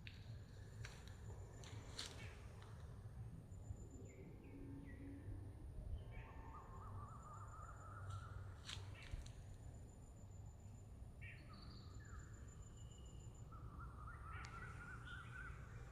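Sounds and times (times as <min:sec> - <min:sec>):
faint birdsong: 0:06.0 - 0:15.9.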